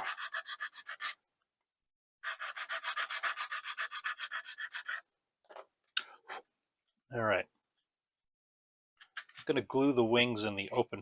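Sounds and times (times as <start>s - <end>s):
sanding stick rubbing on plastic: 0.0s - 1.2s.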